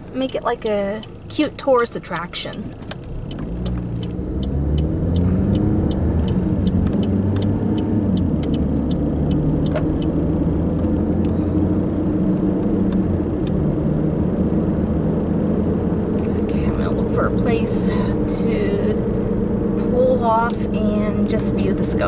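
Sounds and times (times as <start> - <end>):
light even ticking: 0.0 - 13.7
car engine: 0.0 - 22.0
road noise: 0.0 - 22.0.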